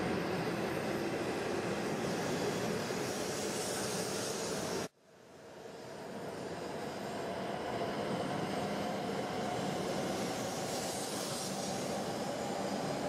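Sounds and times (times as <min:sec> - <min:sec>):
train rushing past on track: 0:00.0 - 0:13.0.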